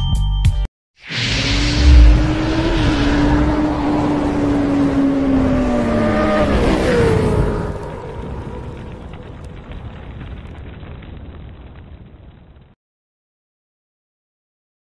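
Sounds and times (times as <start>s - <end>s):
fiery whoosh: 1.0s - 9.7s
heavy low boom: 1.2s - 3.7s.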